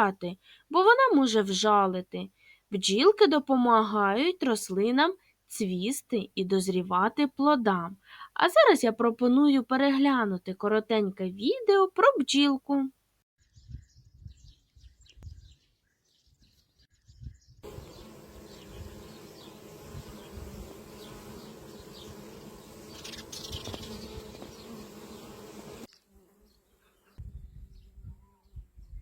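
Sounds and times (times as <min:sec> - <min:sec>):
bees buzzing: 0:17.6 - 0:27.2.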